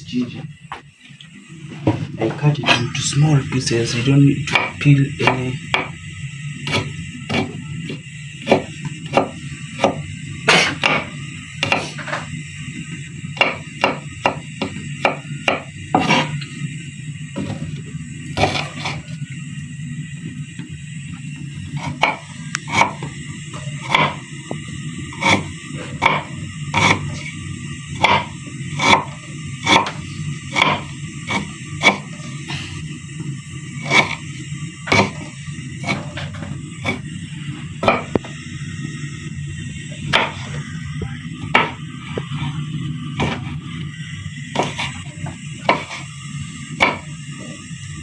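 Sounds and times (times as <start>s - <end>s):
knife chopping ginger: 4.5s - 12.2s, 13.4s - 16.4s, 18.4s - 19.1s, 21.7s - 32.8s, 33.8s - 37.1s, 37.8s - 38.3s, 40.1s - 40.6s, 41.4s - 41.8s, 43.2s - 43.6s, 44.6s - 46.1s, 46.8s - 47.1s
low hum: 19.0s - 48.0s.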